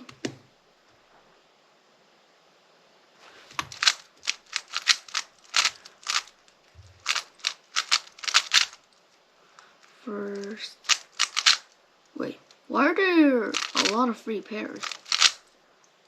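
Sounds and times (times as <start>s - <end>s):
speed cube plastic clicks: 3.5s - 8.8s, 10.4s - 11.8s, 13.5s - 14.0s, 14.8s - 15.5s.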